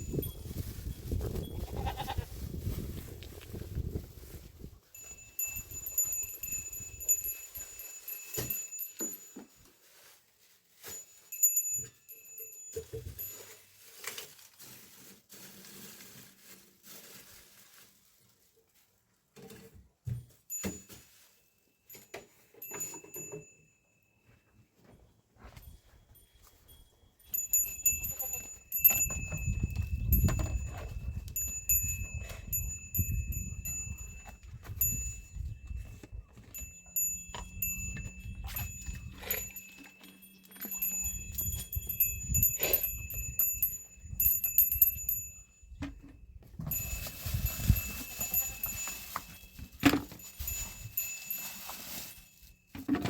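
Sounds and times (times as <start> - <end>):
livestock bells ringing: 4.9 - 9.6, 10.8 - 13.6, 21.9 - 24.3, 26.1 - 45.8, 46.6 - 52.8.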